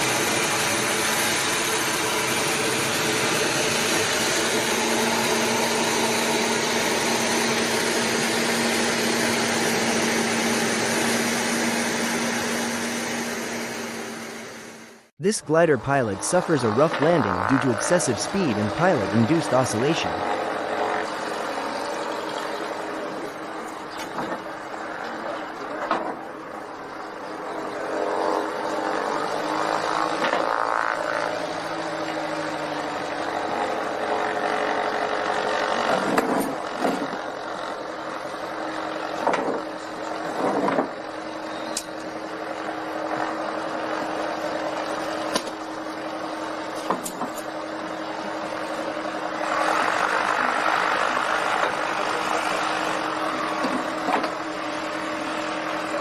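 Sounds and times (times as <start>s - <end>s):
loud noise: 15.2s - 20.3s.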